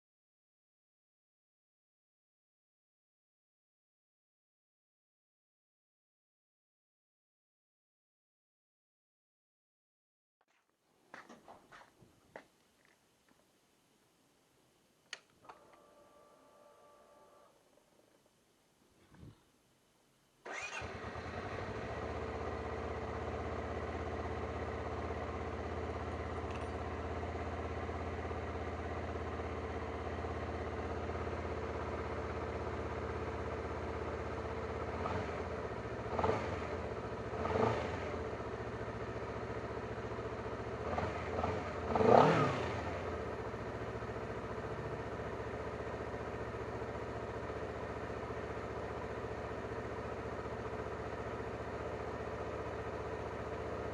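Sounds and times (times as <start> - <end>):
electric starter cranking: 20.4 - 21.2
engine throttle blips: 20.4 - 23.6
motorcycle engine idling: 20.5 - 53.9.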